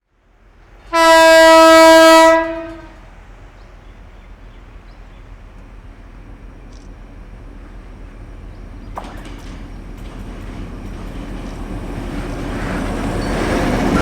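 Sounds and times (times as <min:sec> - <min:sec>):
train horn: 0:00.9 - 0:03.2.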